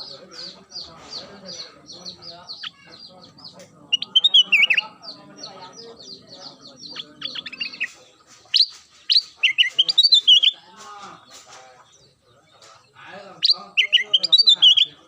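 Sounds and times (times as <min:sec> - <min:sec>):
bulbul singing whistled notes: 0:03.5 - 0:10.6, 0:13.4 - 0:15.0.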